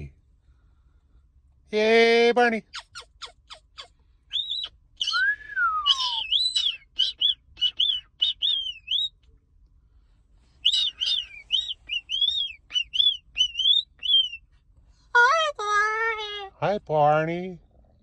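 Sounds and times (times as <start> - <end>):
cockatoo chirping: 2.7 - 9.2, 10.6 - 14.5
cockatoo falling whistle: 4.3 - 9.1.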